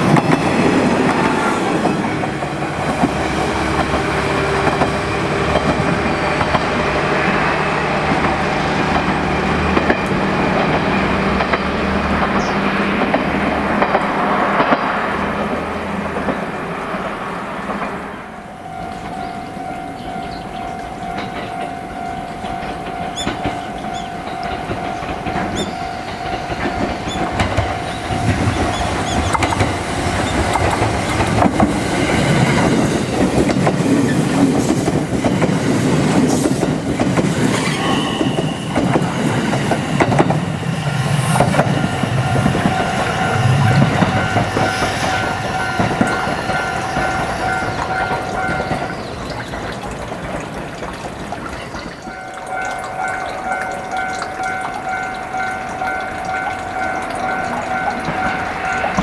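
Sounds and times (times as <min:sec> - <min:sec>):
train wheels clattering over rail joints: 0:00.0 - 0:07.4, 0:08.0 - 0:18.0, 0:21.0 - 0:52.7.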